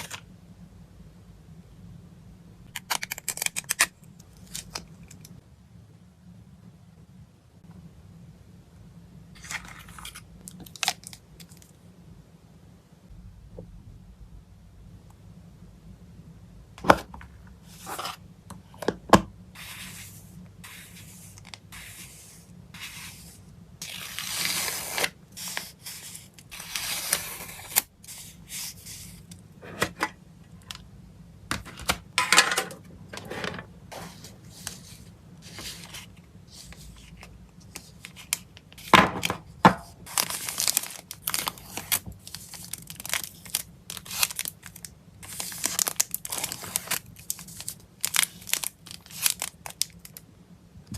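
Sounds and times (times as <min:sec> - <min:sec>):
plastic wrapping crinkling: 0:40.0 - 0:50.2.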